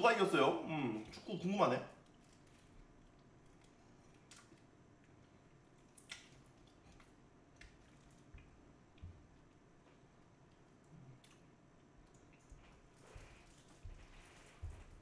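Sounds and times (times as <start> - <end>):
wet chewing clicks and smacks: 2.0 - 13.8.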